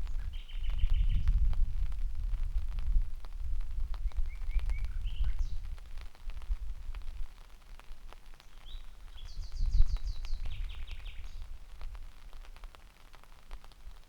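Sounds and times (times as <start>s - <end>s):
raindrops ticking: 0.0s - 14.0s
nightingale singing: 4.1s - 5.6s.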